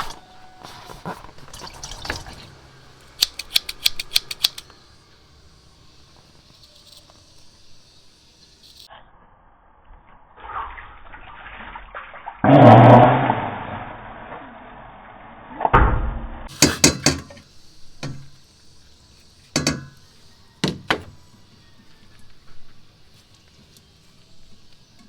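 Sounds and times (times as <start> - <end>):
liquid pouring into container: 0.8 - 2.7.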